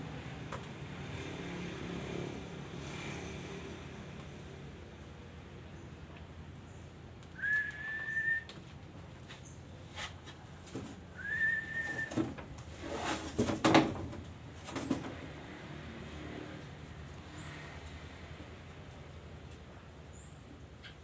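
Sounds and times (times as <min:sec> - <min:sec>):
bird whistled notes: 0:07.4 - 0:08.5, 0:11.2 - 0:12.2
rustling or knocking noise: 0:09.2 - 0:15.3.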